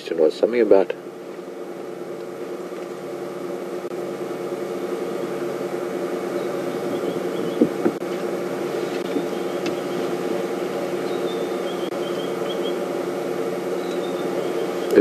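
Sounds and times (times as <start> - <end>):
faint bird chirps: 6.3 - 8.0, 9.0 - 10.1, 11.0 - 12.8, 13.7 - 15.0.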